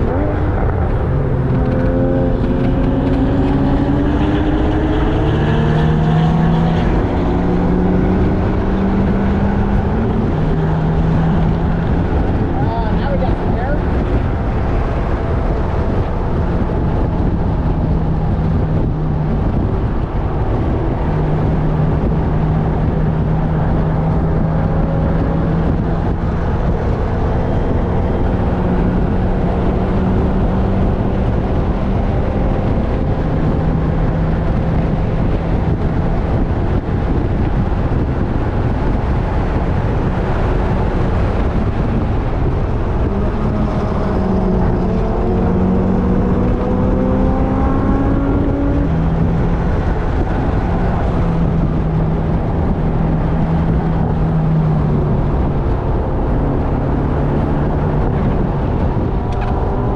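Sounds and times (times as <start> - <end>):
car engine running hard: 0.0 - 59.9
road noise: 0.0 - 59.9
wind noise: 0.0 - 59.9.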